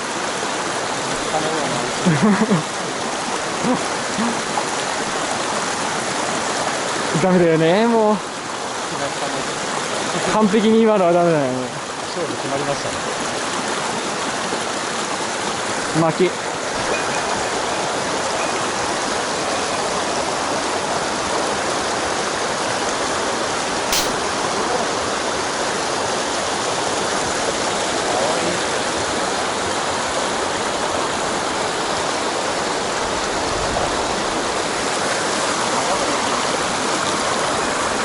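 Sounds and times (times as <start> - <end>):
stream water rushing: 0.0 - 38.0
sharp click: 23.9 - 24.3.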